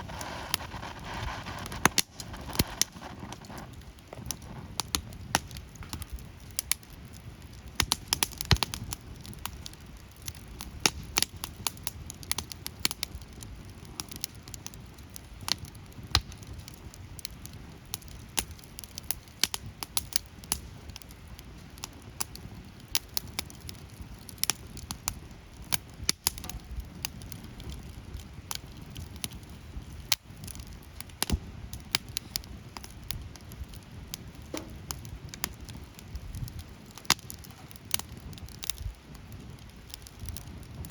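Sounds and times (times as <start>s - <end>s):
bonfire crackling: 0.0s - 40.9s.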